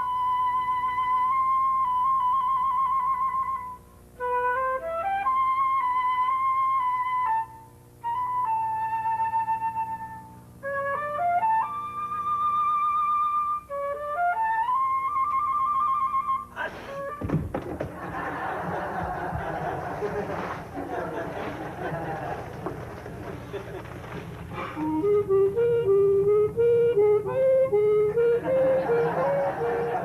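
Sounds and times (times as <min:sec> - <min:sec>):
solo flute melody: 0:00.0 - 0:17.3, 0:24.6 - 0:30.0.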